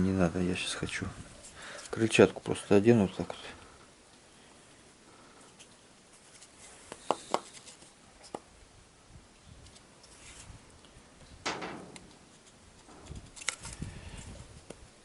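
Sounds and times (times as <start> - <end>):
short scraping rustle: 10.0 - 10.6.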